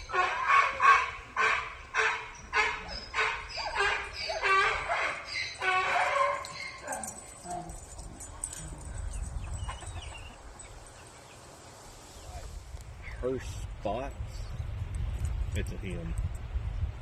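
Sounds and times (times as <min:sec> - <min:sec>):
dog yipping: 0:02.6 - 0:07.8.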